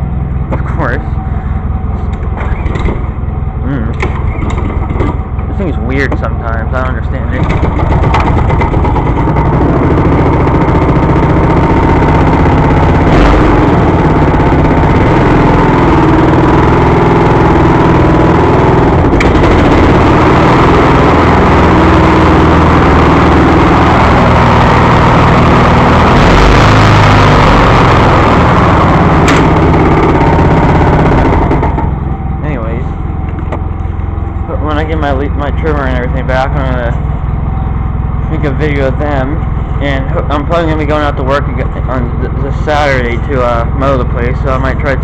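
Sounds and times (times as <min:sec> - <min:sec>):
mower engine running: 0:00.0 - 0:45.0
sharp clicks: 0:29.2 - 0:29.6.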